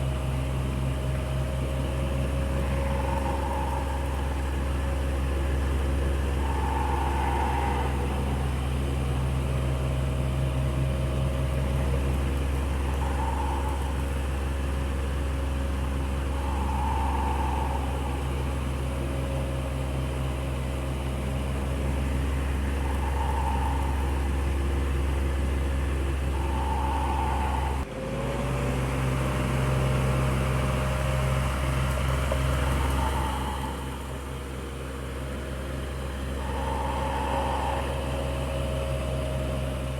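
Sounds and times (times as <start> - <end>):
electric fan humming: 0.0 - 27.9
faint fan whir: 0.0 - 39.9.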